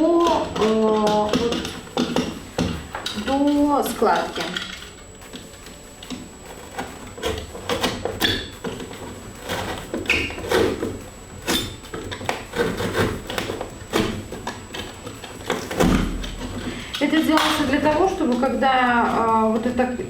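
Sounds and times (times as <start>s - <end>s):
cardboard box being cut: 6.3s - 16.6s.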